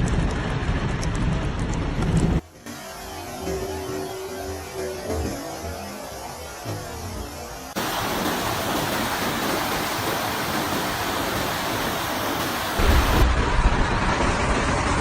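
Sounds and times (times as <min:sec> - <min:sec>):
heavy low rumble: 0:00.0 - 0:07.7, 0:12.8 - 0:15.0
storm rushing noise: 0:06.5 - 0:15.0.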